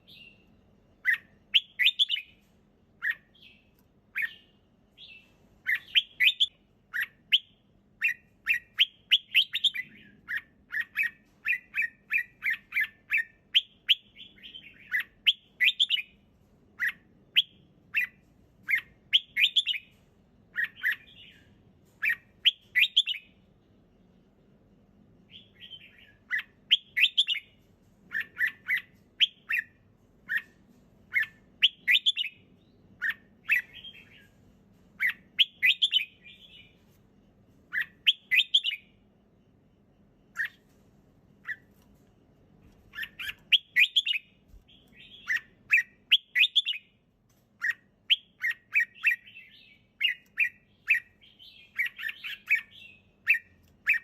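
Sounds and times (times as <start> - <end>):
bird singing chirpy phrases: 3.0 - 16.1, 20.5 - 23.4, 28.1 - 30.5, 31.1 - 34.3, 37.7 - 38.9, 42.9 - 46.9, 47.6 - 54.0.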